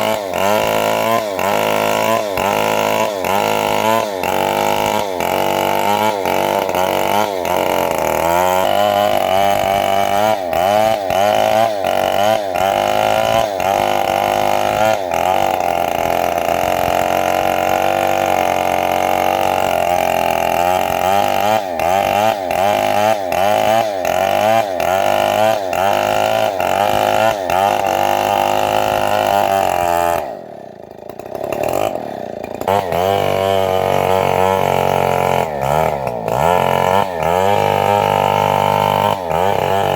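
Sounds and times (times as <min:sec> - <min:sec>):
sawmill engine running under load: 0:00.0 - 0:39.9.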